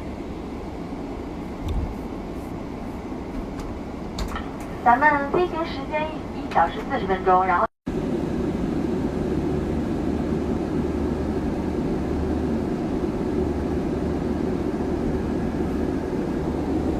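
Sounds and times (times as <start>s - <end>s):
airliner cabin engine rush: 0.0s - 16.9s.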